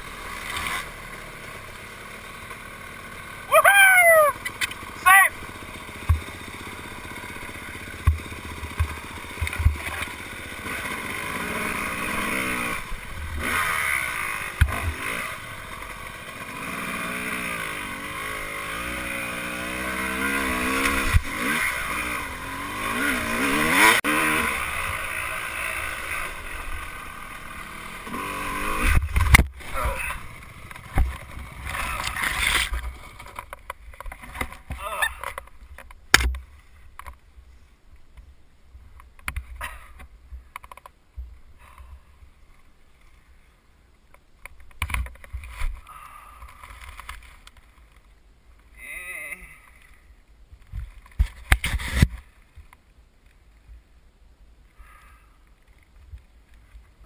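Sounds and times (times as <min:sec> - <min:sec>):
dirt bike engine revving: 0:00.0 - 0:33.4.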